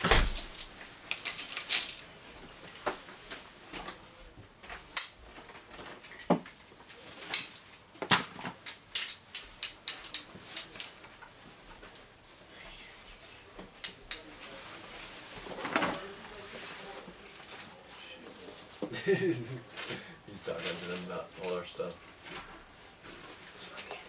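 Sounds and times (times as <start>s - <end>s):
metal climbing hardware clinking: 0.0s - 2.1s.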